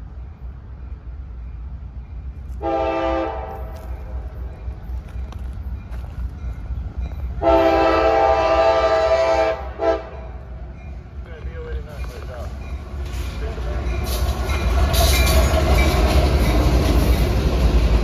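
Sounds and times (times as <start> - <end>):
passing train rumble: 0.0 - 18.0
locomotive air horn blasts: 2.6 - 3.8, 7.4 - 10.4.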